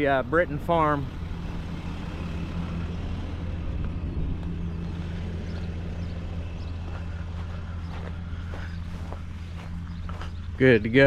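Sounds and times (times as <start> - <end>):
pickup truck engine idling: 0.0 - 11.0.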